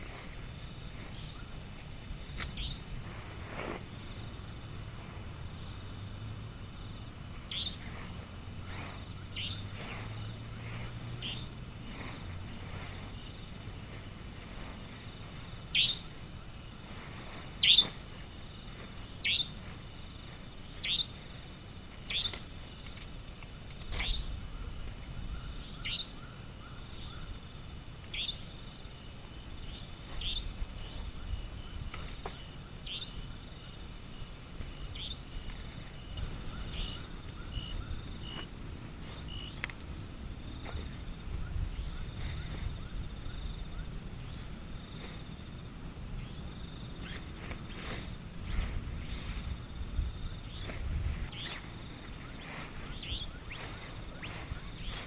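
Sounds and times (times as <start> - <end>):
bird calling: 8.7 - 10.0, 15.7 - 16.2, 17.6 - 18.0, 19.2 - 19.7, 20.8 - 21.2, 36.2 - 38.5, 50.4 - 55.0.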